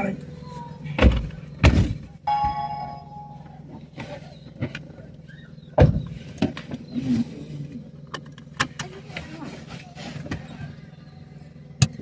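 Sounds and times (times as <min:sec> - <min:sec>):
vehicle engine idling: 0:00.0 - 0:12.0
knocks and thumps: 0:01.0 - 0:02.6, 0:05.8 - 0:06.8.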